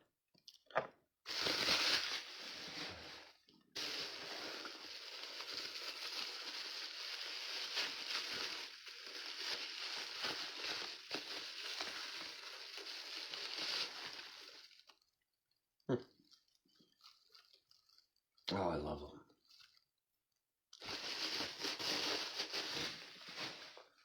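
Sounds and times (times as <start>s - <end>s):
packing wrapping crinkling: 1.3s - 15.1s, 20.8s - 24.0s.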